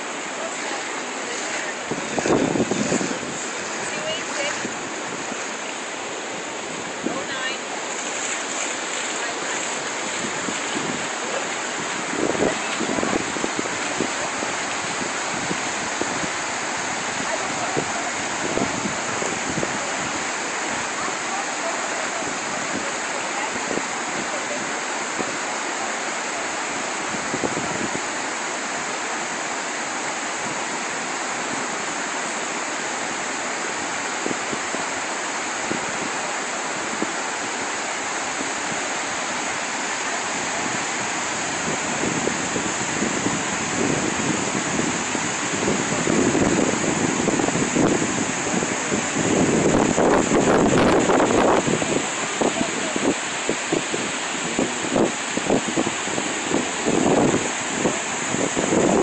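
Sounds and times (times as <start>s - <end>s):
rushing floodwater roar: 0.0s - 59.0s
wind buffeting microphone: 1.1s - 25.5s, 26.7s - 28.2s, 35.6s - 59.0s.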